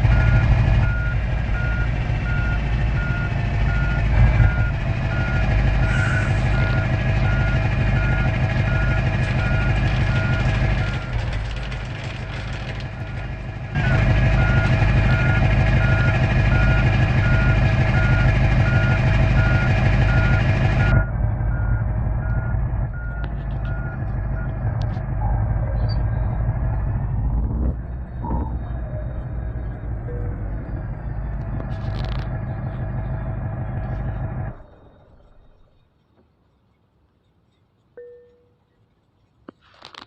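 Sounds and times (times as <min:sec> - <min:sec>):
truck engine running: 0:00.0 - 0:35.7
reversing alarm beeping: 0:00.1 - 0:11.2, 0:13.8 - 0:32.2.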